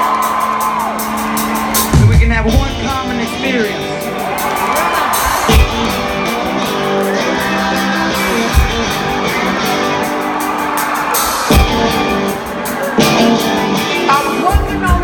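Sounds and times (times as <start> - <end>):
guitar riff over chords: 1.8 - 4.4, 5.0 - 10.7, 11.5 - 15.0
deep drum hits: 1.9 - 3.0.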